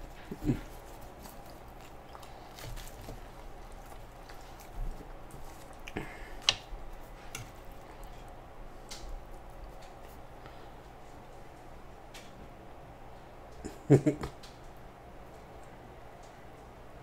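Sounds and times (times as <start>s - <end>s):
chewing and wet mouth noises: 0.0s - 10.3s.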